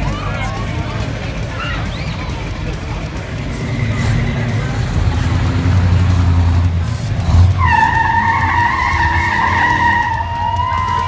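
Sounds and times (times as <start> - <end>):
car engines rumbling past: 0.0 - 11.0
high steady squealing tone: 7.6 - 11.0.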